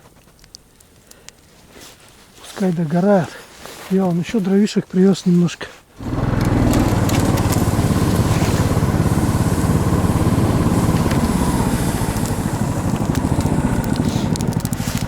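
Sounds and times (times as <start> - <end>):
small engine running: 6.0 - 15.0.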